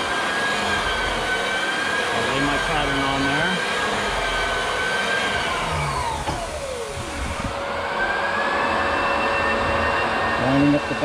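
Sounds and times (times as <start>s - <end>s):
motor whining: 0.0s - 11.0s
steady rushing noise: 5.8s - 11.0s.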